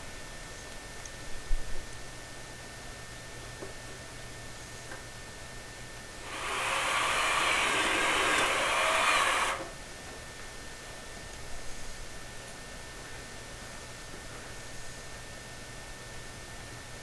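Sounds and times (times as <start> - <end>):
power drill driving screw into metal: 6.2 - 9.7.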